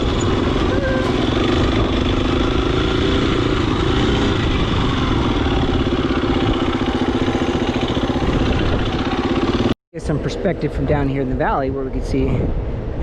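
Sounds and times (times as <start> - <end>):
dirt bike engine running: 0.0 - 9.8.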